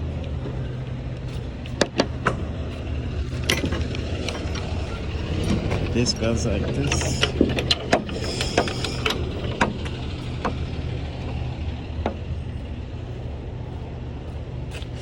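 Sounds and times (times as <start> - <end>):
diesel truck engine idling: 0.0 - 15.0
sharp clicks and knocks: 1.2 - 12.3.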